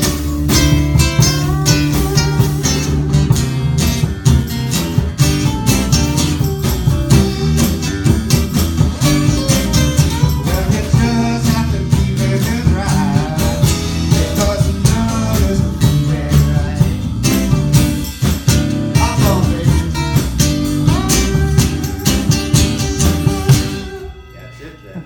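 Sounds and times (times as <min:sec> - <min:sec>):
live band playing country blues: 0:00.0 - 0:25.0
person singing: 0:09.4 - 0:17.2, 0:19.0 - 0:25.0.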